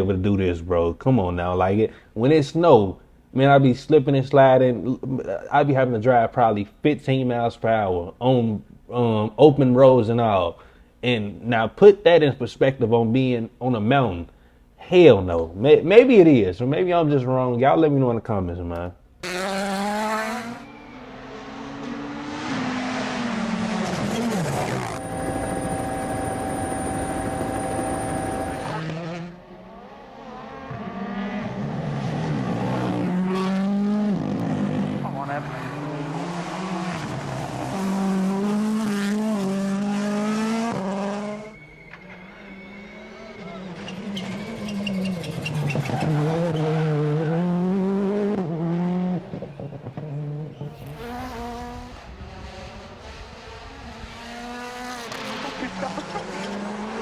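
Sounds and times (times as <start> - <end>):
rally car engine at high revs: 19.2 - 41.5, 44.0 - 57.0
car accelerating: 19.2 - 41.6, 43.0 - 57.0.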